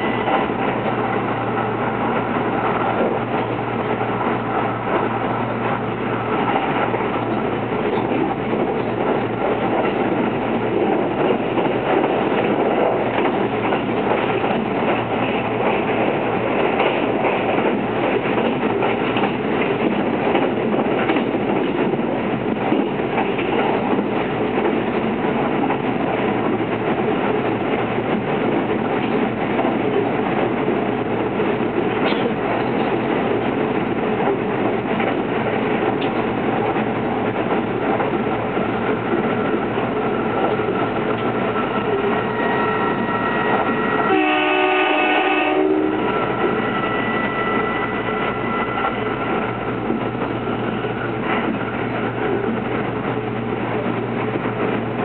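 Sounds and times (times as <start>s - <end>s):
wheels rumbling on rail: 0.0s - 55.0s
train horn: 42.5s - 46.3s.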